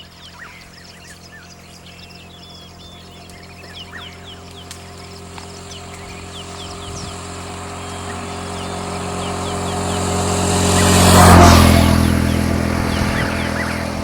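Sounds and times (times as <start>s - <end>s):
vehicle driving past: 0.0s - 14.0s
downward bird chirps: 12.1s - 14.0s.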